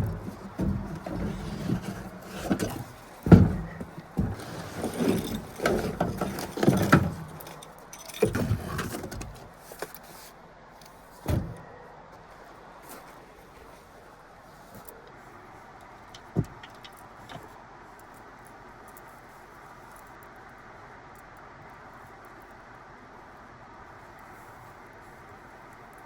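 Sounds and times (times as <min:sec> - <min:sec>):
loud thumps: 0:00.0 - 0:07.4, 0:11.2 - 0:11.6
gear clunking and rustling: 0:00.0 - 0:12.3, 0:14.6 - 0:18.2.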